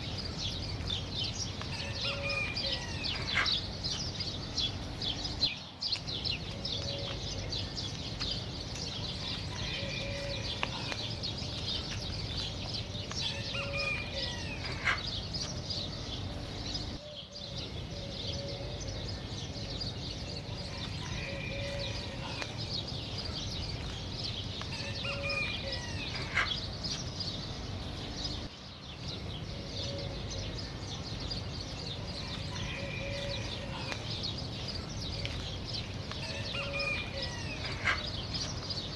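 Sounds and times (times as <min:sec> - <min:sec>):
flock of small birds chirping: 0:00.0 - 0:38.9
sliding bird calls: 0:13.0 - 0:15.6, 0:24.6 - 0:27.1, 0:36.0 - 0:38.8.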